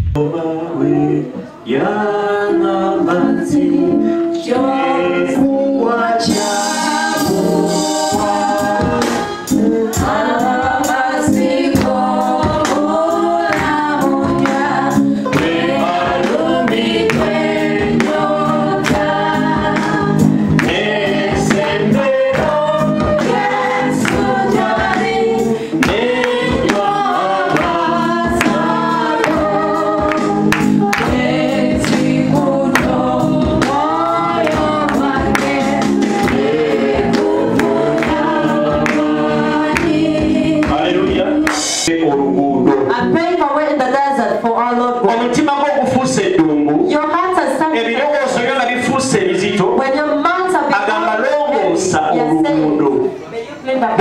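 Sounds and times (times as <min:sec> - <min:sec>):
choir singing gospel music: 0:00.1 - 0:54.0
instrumental accompaniment with beat: 0:03.0 - 0:43.3.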